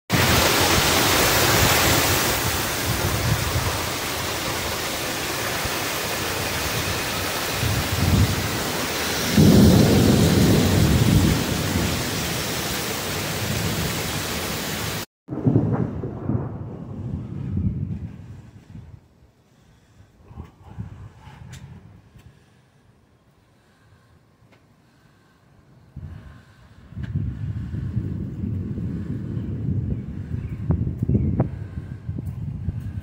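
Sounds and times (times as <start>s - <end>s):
heavy rain pouring: 0.1s - 17.8s
gusting wind: 0.1s - 24.1s, 24.9s - 33.0s.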